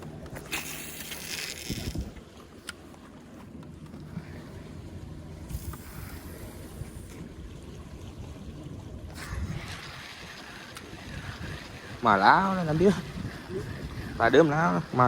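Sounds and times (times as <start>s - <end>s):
boat engine rumble: 0.0s - 15.0s
water noise: 0.0s - 15.0s
wind: 0.0s - 15.0s.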